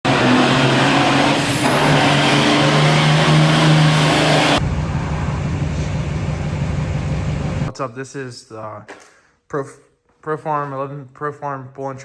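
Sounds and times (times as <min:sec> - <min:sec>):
tractor diesel engine running: 0:00.2 - 0:07.7
low engine rumble: 0:04.5 - 0:07.7.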